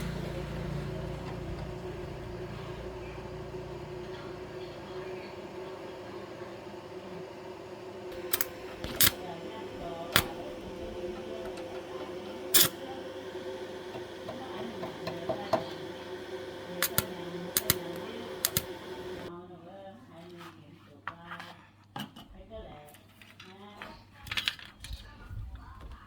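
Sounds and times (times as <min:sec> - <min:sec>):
machine hum with held tone: 0:00.0 - 0:19.3.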